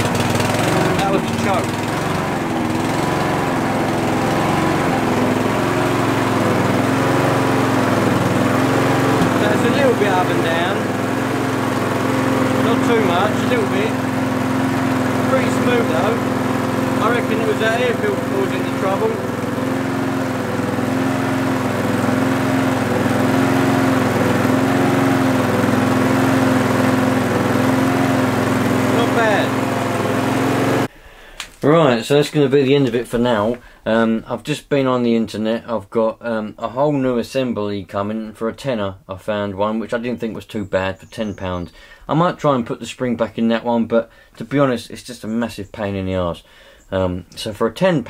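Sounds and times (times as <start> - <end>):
lawnmower engine running: 0.0 - 30.9.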